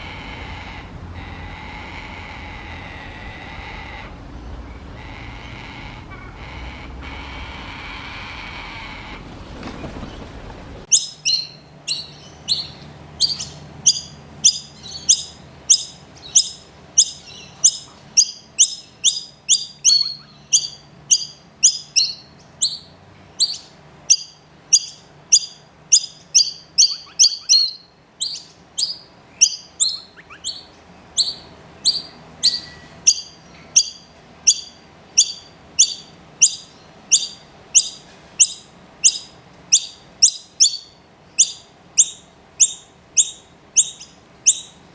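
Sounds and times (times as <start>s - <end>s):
chick begging chirps: 10.9s - 44.8s.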